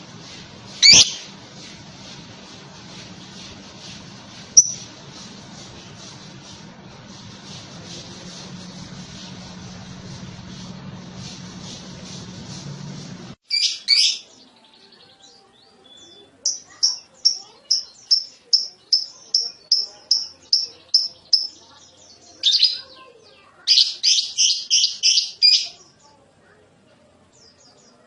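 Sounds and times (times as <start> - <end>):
lovebird chirping: 0.8 - 1.3, 4.6 - 4.9, 13.5 - 14.3, 15.9 - 23.0, 23.7 - 25.9.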